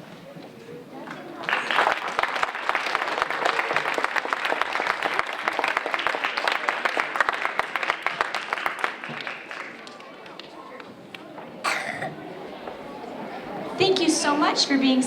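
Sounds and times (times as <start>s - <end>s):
audience applauding: 1.4s - 10.2s.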